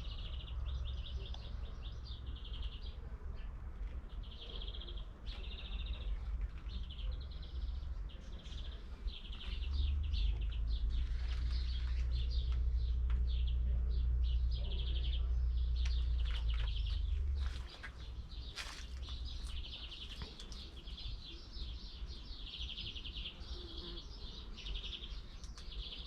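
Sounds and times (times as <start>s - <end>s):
songbirds trilling and chirping: 0.0s - 26.0s
low rumble: 5.5s - 20.0s.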